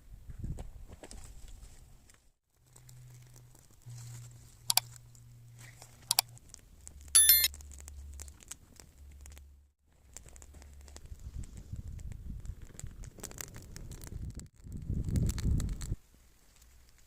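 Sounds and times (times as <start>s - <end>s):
bright bell-like ring: 7.2s - 7.5s
sharp metallic clicks: 7.2s - 7.5s.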